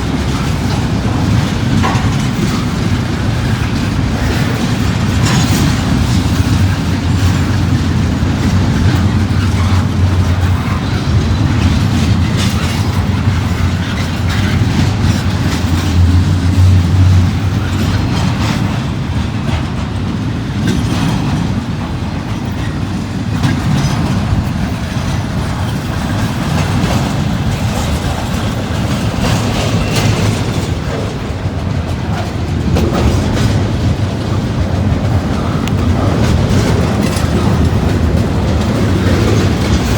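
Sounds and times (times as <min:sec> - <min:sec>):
freight train rumbling by: 0:00.0 - 0:39.9
wheels clacking over rail joints: 0:00.0 - 0:39.9.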